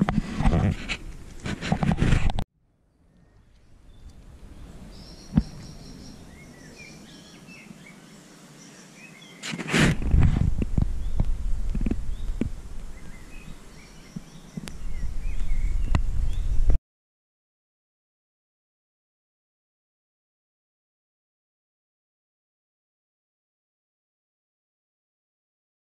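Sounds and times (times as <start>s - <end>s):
small birds chirping: 2.8s - 9.6s, 10.6s - 16.8s.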